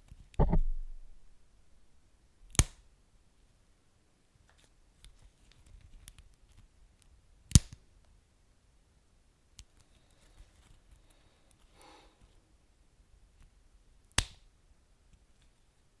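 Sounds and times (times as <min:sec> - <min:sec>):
loud sharp snap: 0:02.5 - 0:02.8, 0:14.2 - 0:14.4.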